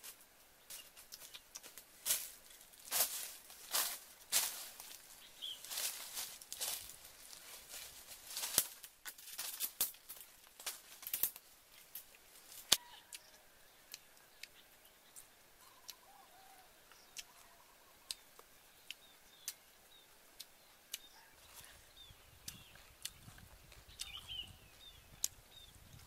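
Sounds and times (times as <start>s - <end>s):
dry leaves and twigs crackling: 0.0s - 18.2s
faint bird chirps: 5.1s - 6.8s, 12.5s - 26.0s.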